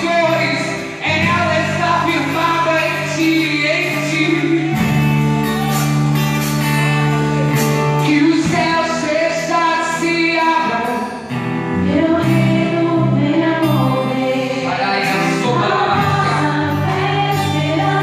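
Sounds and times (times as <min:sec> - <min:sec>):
bass and keyboard chords: 0:00.0 - 0:18.0
worship band playing: 0:00.0 - 0:18.0
voices singing: 0:11.8 - 0:18.0.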